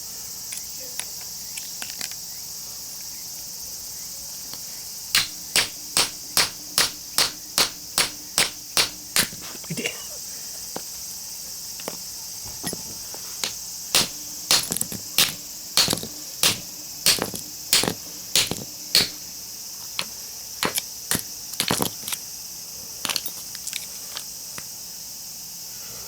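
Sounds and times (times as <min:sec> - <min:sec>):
hammer striking chisel on steel: 0:05.2 - 0:09.5, 0:12.6 - 0:19.2, 0:20.6 - 0:21.9.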